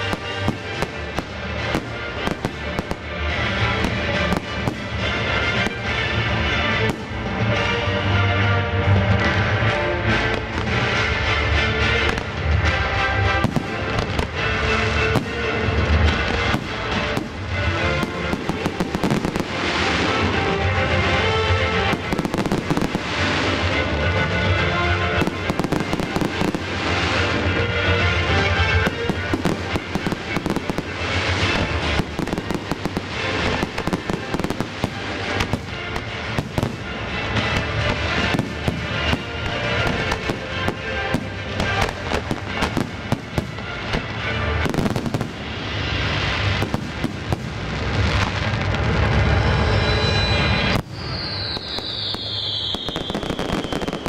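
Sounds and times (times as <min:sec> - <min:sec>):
music: 0:00.0 - 0:54.0.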